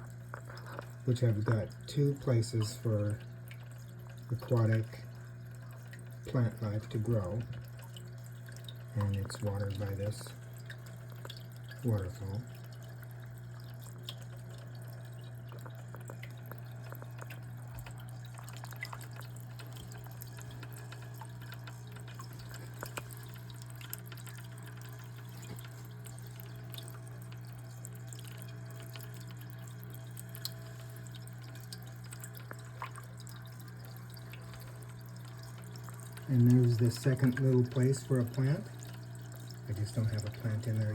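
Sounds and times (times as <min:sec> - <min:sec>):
steady low hum: 0:00.0 - 0:40.9
water dripping and trickling over stones: 0:00.0 - 0:40.9.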